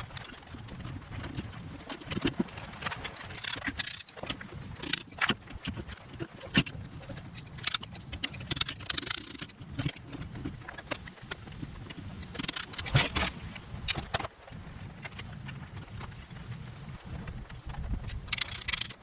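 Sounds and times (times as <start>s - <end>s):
metallic clinks and scrapes of tools: 0.0s - 10.2s, 12.2s - 14.3s, 18.0s - 19.0s.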